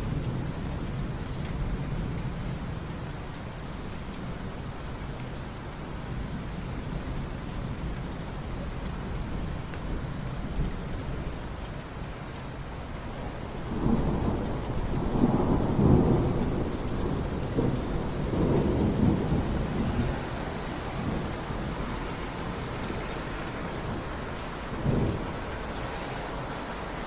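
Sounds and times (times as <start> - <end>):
steady rain: 0.0 - 27.0
thunder rolling: 13.6 - 25.8.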